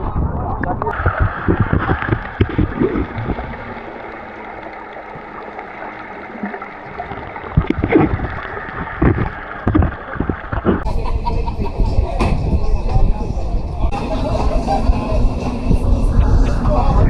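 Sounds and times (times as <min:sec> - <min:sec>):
wind buffeting microphone: 0:00.0 - 0:04.6, 0:06.8 - 0:17.0
rushing water: 0:00.0 - 0:10.9.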